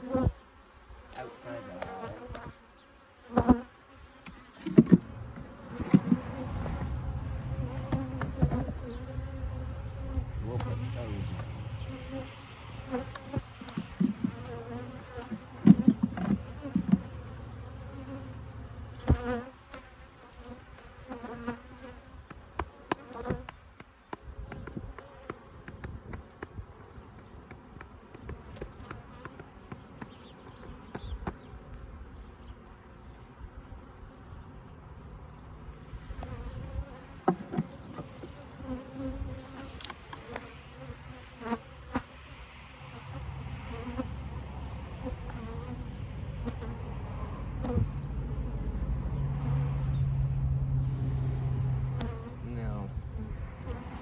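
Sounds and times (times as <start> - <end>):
honeybees buzzing: 0.0 - 54.0
hive frames knocking: 4.6 - 6.9, 7.6 - 9.0, 13.0 - 17.2.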